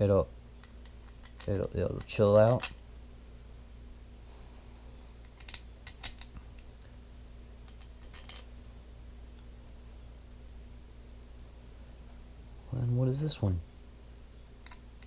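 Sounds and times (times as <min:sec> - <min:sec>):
small parts clicking: 0:00.6 - 0:02.8, 0:05.2 - 0:06.7, 0:07.6 - 0:08.5, 0:14.6 - 0:15.0.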